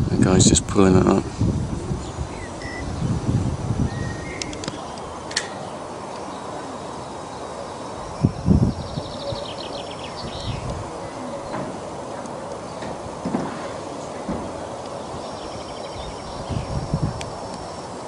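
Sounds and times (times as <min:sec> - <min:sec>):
small birds chirping: 0:01.9 - 0:13.2, 0:13.9 - 0:17.9
bird trill: 0:02.4 - 0:03.1, 0:03.9 - 0:11.5, 0:15.0 - 0:17.0.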